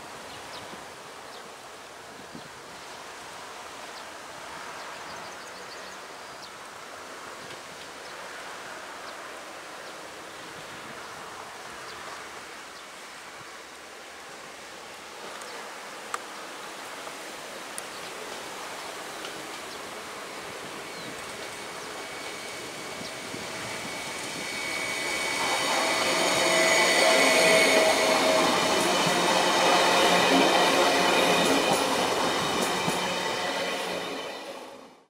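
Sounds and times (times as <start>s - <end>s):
train wheels on track: 18.2s - 35.0s
train high whine: 18.5s - 35.0s.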